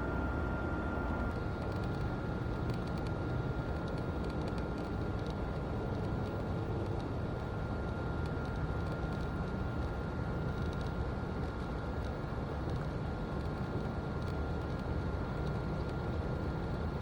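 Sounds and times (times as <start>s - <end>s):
faint high whine: 0.0s - 1.6s
outdoor background rumble: 0.0s - 17.0s.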